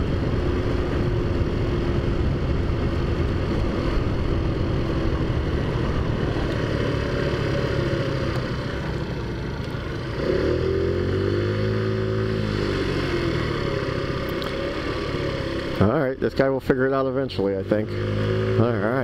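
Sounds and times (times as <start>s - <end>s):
scooter engine revving: 0.0s - 16.0s, 17.6s - 19.0s.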